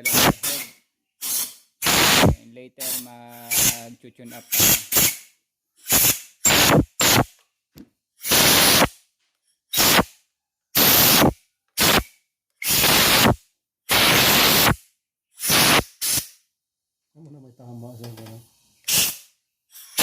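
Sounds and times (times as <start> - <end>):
pressurized spray hissing: 0.0 - 5.2, 8.2 - 8.9, 10.8 - 12.0, 12.6 - 14.8, 15.4 - 16.3, 18.9 - 19.2.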